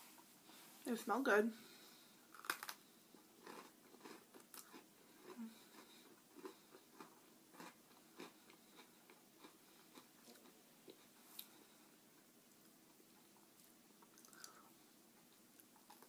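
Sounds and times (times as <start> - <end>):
cookie crunching: 2.3 - 11.6.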